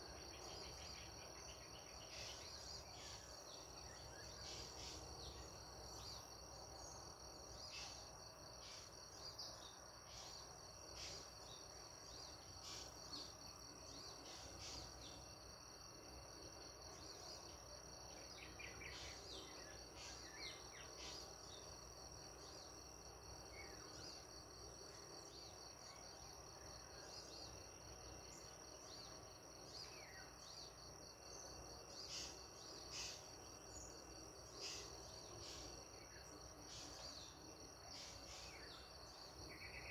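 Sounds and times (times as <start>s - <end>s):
faint insect trilling: 0.0s - 39.9s.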